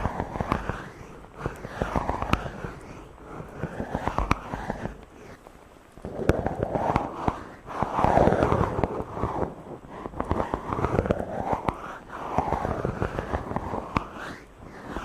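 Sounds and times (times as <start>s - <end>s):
fingers rubbing on microphone: 0.0s - 15.0s.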